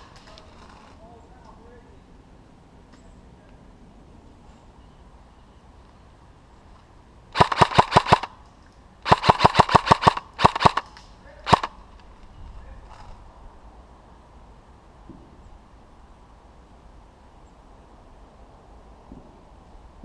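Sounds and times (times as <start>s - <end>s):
airsoft gun firing bursts: 7.4s - 8.4s, 9.0s - 11.8s.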